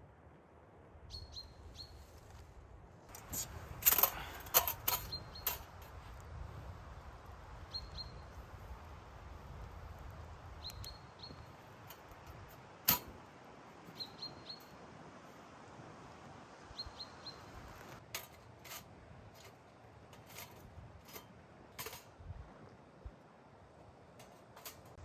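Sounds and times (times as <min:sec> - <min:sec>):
small bird chirping: 0:01.1 - 0:02.1, 0:03.1 - 0:06.1, 0:07.6 - 0:08.6, 0:10.6 - 0:11.8, 0:13.9 - 0:14.8, 0:16.8 - 0:18.0.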